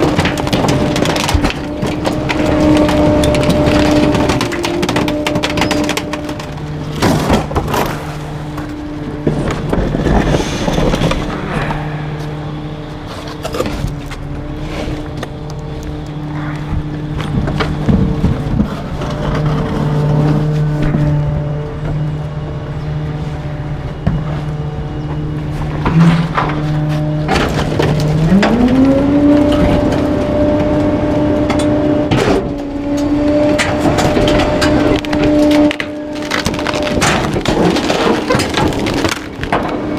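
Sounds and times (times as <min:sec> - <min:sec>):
waste cracking and splintering: 0:00.0 - 0:08.7, 0:32.5 - 0:39.9
items being crushed: 0:00.0 - 0:21.4, 0:25.4 - 0:39.9
hydraulic whine: 0:00.0 - 0:39.9
truck engine hum: 0:00.0 - 0:39.9.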